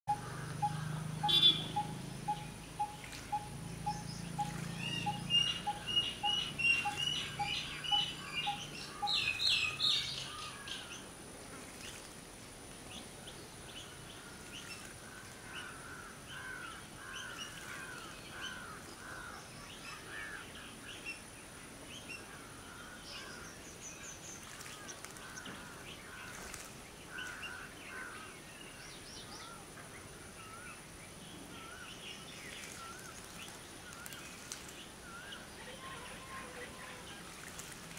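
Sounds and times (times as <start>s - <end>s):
bird repeating low note: 0.1s - 9.8s
sharp high bird chirps: 0.1s - 9.8s
down-slurred bird calls: 0.1s - 11.0s.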